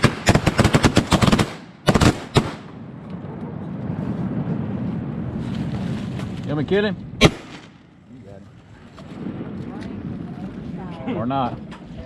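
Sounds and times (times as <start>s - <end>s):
shotgun shots: 0.0s - 2.7s, 7.2s - 7.8s.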